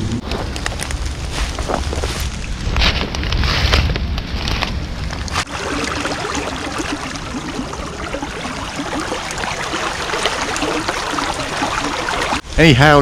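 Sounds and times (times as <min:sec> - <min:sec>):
rain falling: 0:05.0 - 0:12.5.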